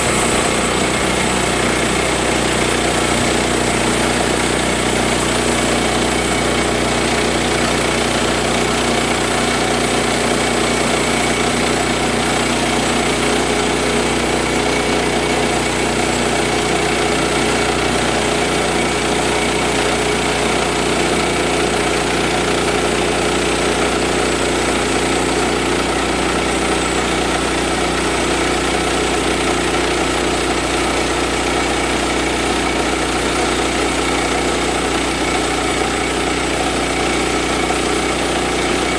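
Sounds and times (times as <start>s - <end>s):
saw cutting log: 0.0s - 38.9s
sawmill engine running: 0.0s - 38.9s.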